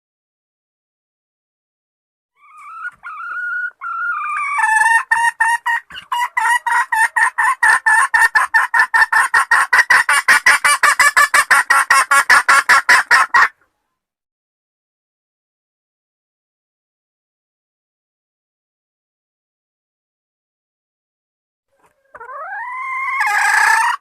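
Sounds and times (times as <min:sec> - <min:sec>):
hen clucking: 0:02.4 - 0:13.6, 0:21.7 - 0:24.0.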